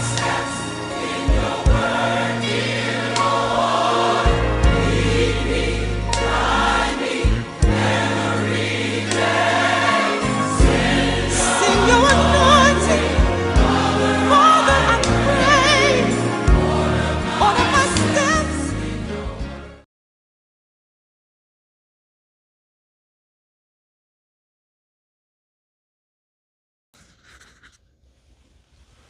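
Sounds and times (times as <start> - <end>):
gospel choir singing: 0.0 - 19.8.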